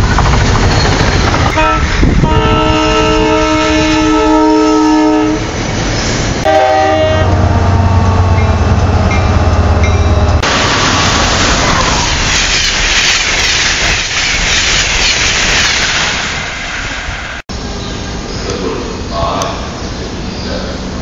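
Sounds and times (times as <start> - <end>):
locomotive engine drone: 0.0 - 12.3
train wheels on rails: 0.0 - 21.0
train horn chord: 1.6 - 5.4, 6.4 - 8.6.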